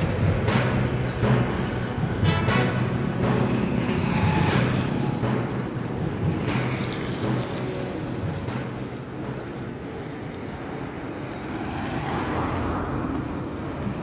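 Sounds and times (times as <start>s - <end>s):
car engines passing: 0.0s - 14.0s
motorcycle passing: 1.6s - 8.2s
tyres hissing on wet road: 9.2s - 14.0s.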